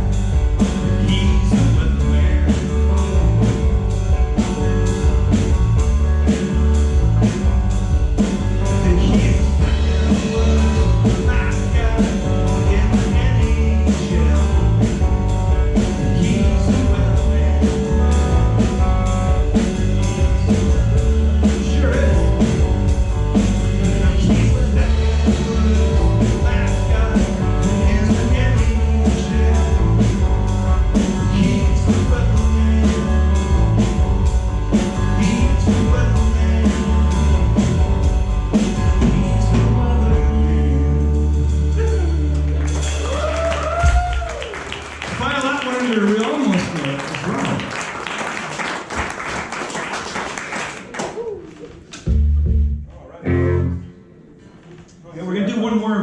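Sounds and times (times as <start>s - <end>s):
steady drum beat: 0.0s - 40.7s, 41.4s - 48.0s
rock band playing live: 0.0s - 46.0s, 52.0s - 54.6s
person singing: 0.8s - 3.0s, 8.6s - 18.8s, 23.6s - 34.0s, 34.7s - 37.7s, 38.6s - 42.9s.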